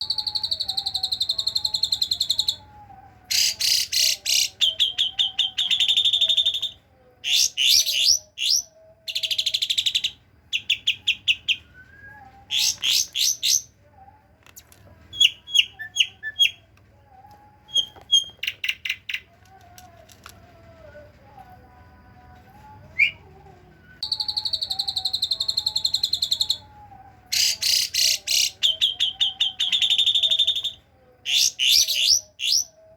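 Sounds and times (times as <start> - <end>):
starling singing fast trills: 0.0 - 14.1, 15.1 - 16.7, 24.0 - 32.9.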